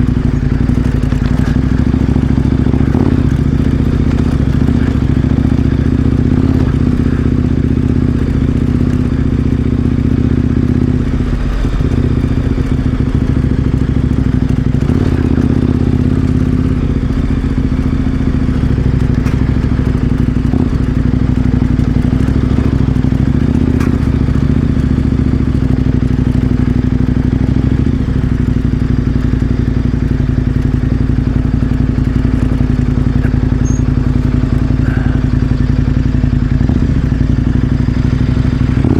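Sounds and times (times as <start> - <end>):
motorcycle engine cruising: 0.0 - 38.9
knocks and clatter: 10.6 - 26.9.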